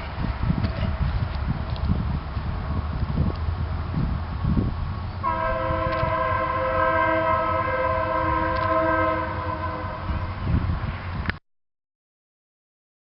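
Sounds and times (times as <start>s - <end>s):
wind rumble on microphone: 0.0s - 11.4s
train horn chord: 5.2s - 10.6s.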